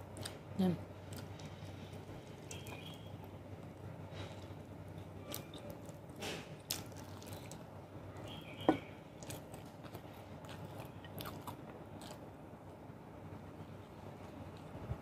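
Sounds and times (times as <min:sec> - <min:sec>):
close chewing and eating: 0:00.0 - 0:12.8, 0:13.7 - 0:15.0.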